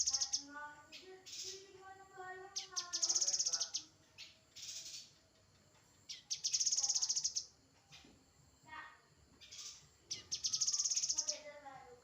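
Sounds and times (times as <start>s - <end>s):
bird singing high trill: 0.0s - 1.7s, 2.4s - 5.2s, 6.1s - 7.6s, 9.4s - 11.5s.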